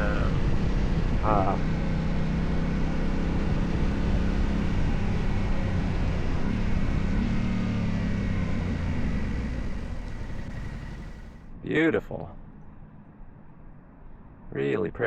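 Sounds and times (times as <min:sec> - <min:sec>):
motorcycle engine running: 0:00.0 - 0:11.4
wind and road noise: 0:00.0 - 0:14.6.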